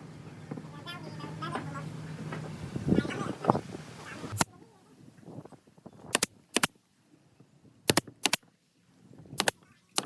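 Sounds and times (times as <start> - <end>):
sharp clicks in pairs: 6.1 - 6.7, 7.9 - 8.4, 9.4 - 10.0.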